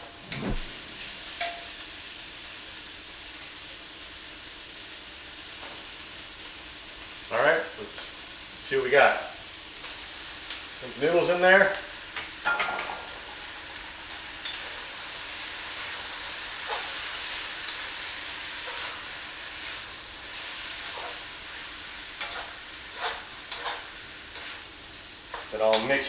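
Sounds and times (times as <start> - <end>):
noodles sizzling in a wok: 0.0 - 26.0.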